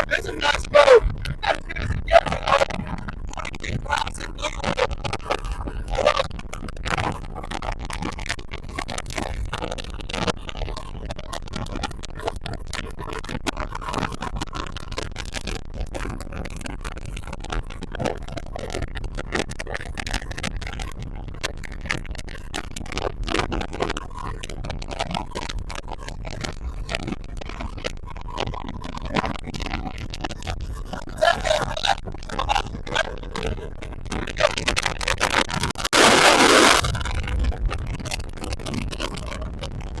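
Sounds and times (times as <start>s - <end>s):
wind buffeting microphone: 0.0s - 7.6s, 35.7s - 40.0s
water against hull: 0.0s - 40.0s.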